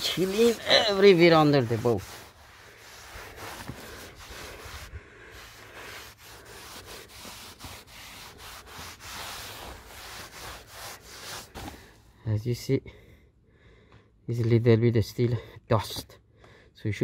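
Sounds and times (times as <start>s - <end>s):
cloth rubbing on hull: 0.0s - 11.9s.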